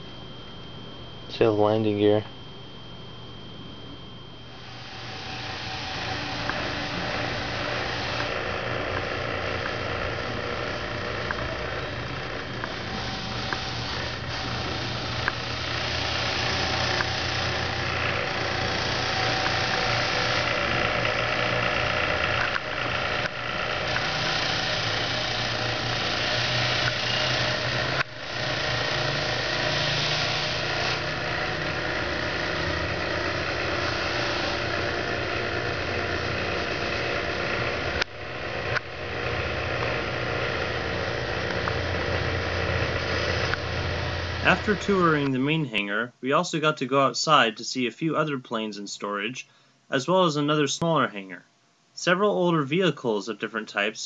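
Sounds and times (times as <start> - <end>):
engine running: 4.6 - 45.2.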